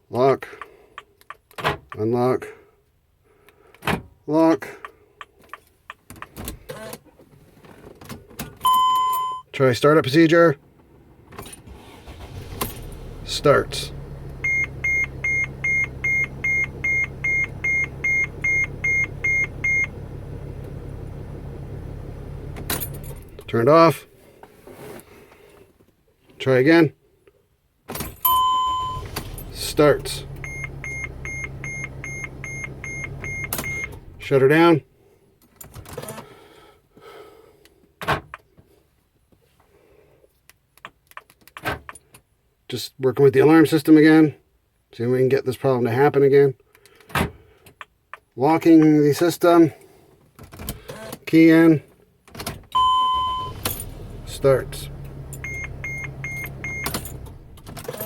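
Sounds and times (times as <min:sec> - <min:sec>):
light clicks of vehicle controls: 0:04.6 - 0:06.4, 0:46.6 - 0:49.3
van engine idling: 0:11.0 - 0:23.8, 0:28.3 - 0:34.6, 0:52.8 - 0:57.9.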